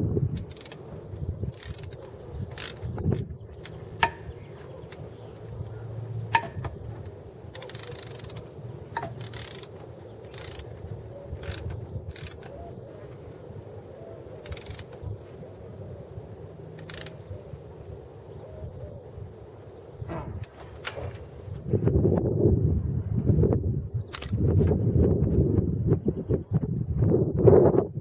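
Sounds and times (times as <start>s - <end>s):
ratchet wrench clicking: 0.3s - 4.3s, 6.3s - 10.8s, 11.4s - 12.6s, 14.4s - 15.0s, 16.8s - 17.2s
ratchet rasping: 0.3s - 12.6s, 14.4s - 15.0s, 16.8s - 17.2s.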